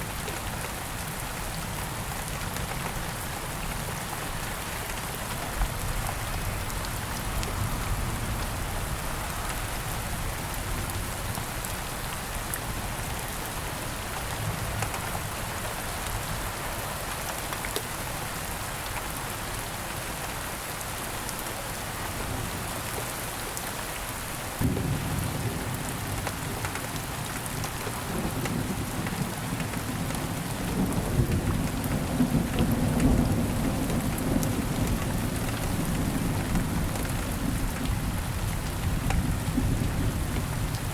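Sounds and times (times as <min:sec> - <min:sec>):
steady rain: 0:00.0 - 0:40.9
thunder rumbling: 0:24.6 - 0:26.2.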